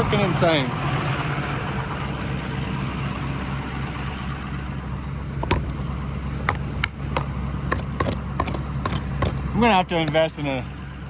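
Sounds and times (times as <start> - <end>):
shovel tapping ice off windshield: 6.4 - 9.5.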